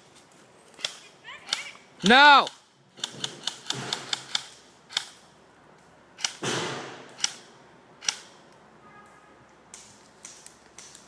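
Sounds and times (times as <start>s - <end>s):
airsoft gun shots: 3.0s - 5.1s, 6.3s - 7.4s.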